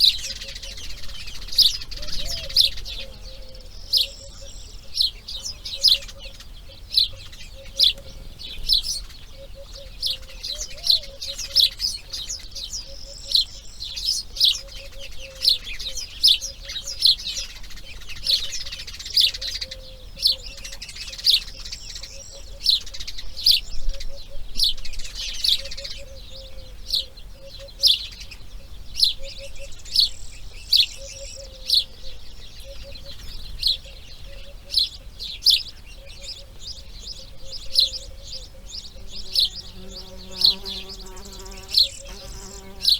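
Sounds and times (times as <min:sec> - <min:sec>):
birds chirping: 0:00.0 - 0:42.9.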